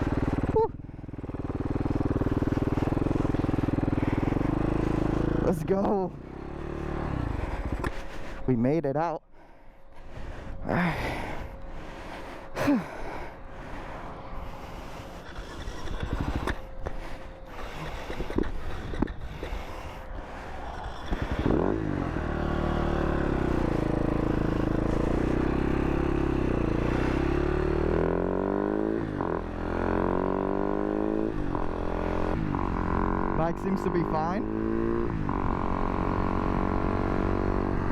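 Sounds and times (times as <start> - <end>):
motorcycle engine running: 0.0 - 8.7, 10.0 - 37.9
gusty wind: 13.3 - 27.3.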